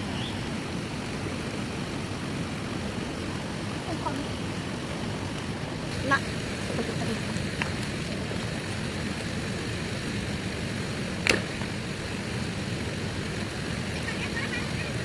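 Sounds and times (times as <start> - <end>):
heavy rain: 0.0 - 15.0
sharp click: 11.2 - 11.7.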